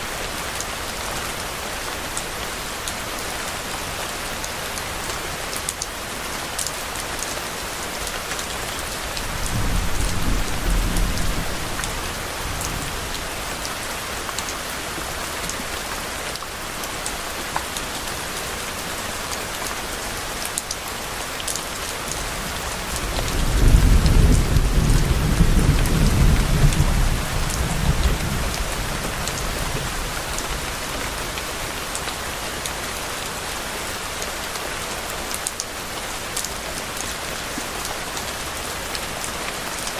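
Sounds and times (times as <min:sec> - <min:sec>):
steady rain falling: 0:00.0 - 0:39.9
distant thunder rolling: 0:09.2 - 0:13.2, 0:22.5 - 0:30.0.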